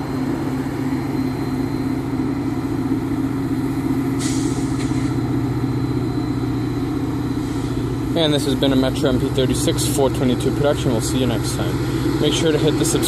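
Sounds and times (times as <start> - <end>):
diesel locomotive engine hum: 0.0 - 13.0
air hiss: 4.2 - 5.2.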